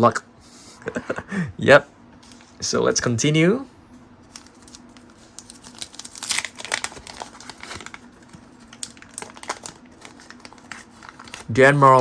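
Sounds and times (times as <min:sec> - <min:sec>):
wrapper crinkling: 0:04.3 - 0:12.0.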